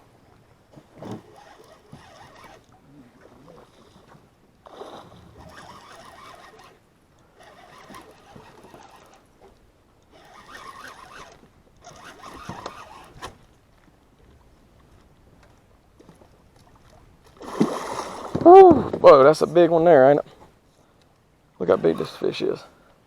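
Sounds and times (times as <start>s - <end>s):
fishing reel rasping: 1.2s - 2.8s, 4.8s - 9.3s, 10.1s - 13.4s.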